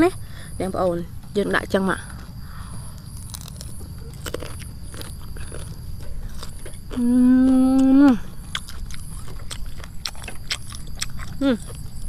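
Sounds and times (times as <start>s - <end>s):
crunching and chewing: 2.0s - 12.0s
person humming mmm: 6.9s - 8.6s, 11.3s - 11.8s.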